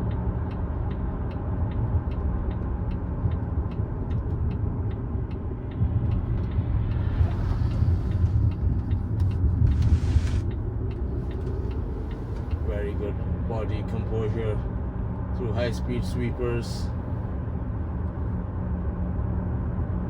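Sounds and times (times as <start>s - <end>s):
light regular ticking: 0.0s - 13.1s
car cabin road rumble: 0.0s - 20.0s.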